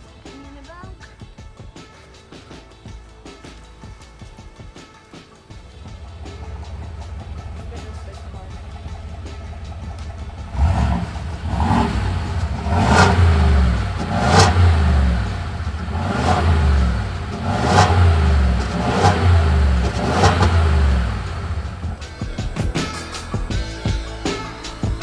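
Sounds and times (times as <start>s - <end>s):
vehicle engine revving: 6.0s - 22.2s.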